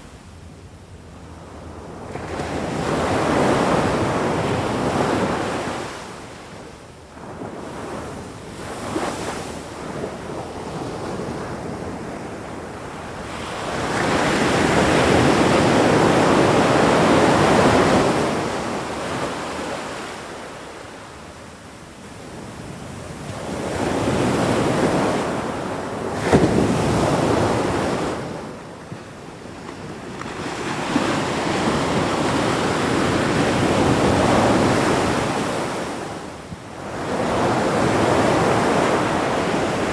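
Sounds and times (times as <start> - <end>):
ocean waves breaking on shore: 1.3 - 21.4, 22.0 - 39.9.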